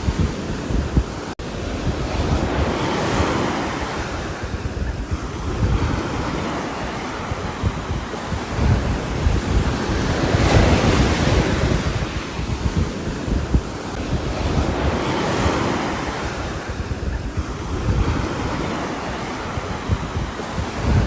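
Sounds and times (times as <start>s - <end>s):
wind gusts: 0.0s - 21.0s.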